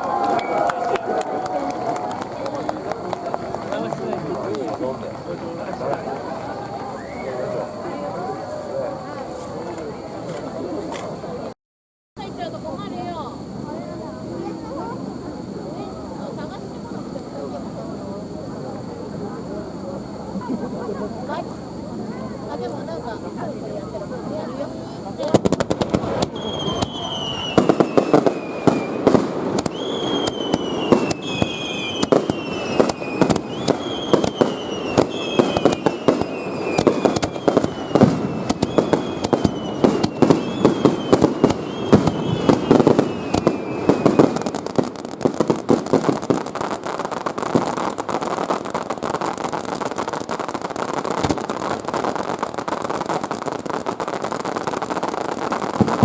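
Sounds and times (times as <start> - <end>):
firework shells banging: 0.0 - 7.4, 25.2 - 56.0
falling firework whistles: 0.0 - 11.5, 12.3 - 56.0
firework crackling: 0.0 - 11.5, 12.2 - 56.0.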